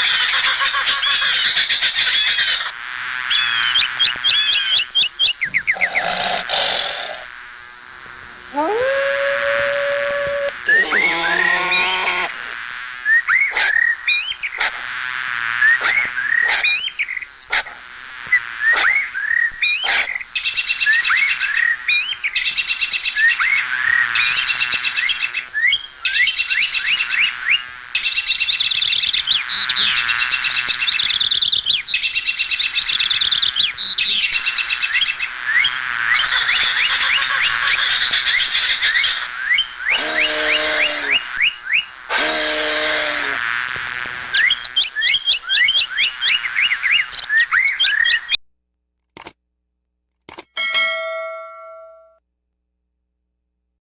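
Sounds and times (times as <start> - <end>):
small birds chirping and twittering: 3.3 - 7.2, 10.5 - 12.5, 15.6 - 43.4, 44.1 - 48.4
low animal call: 5.6 - 7.3, 8.4 - 12.6, 39.8 - 41.4, 42.1 - 43.4.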